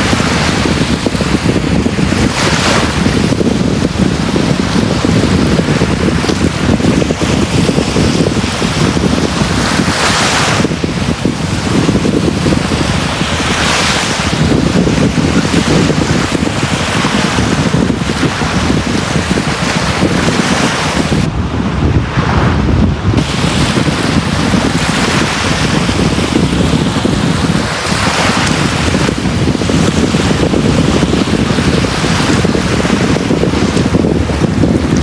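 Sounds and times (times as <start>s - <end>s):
waves breaking on beach: 0.0s - 21.4s, 23.2s - 35.0s
steady low rumble: 21.2s - 35.0s.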